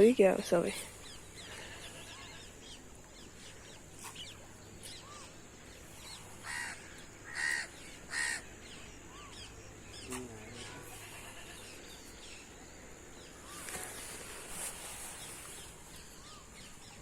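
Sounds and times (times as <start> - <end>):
birds chirping: 0.0 - 17.0
harsh bird calls: 0.7 - 12.6.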